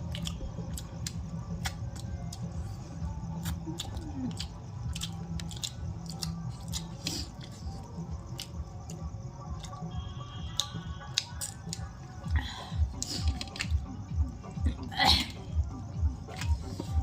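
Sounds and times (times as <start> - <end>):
faint chewing: 0.0 - 9.9
background music: 0.0 - 17.0.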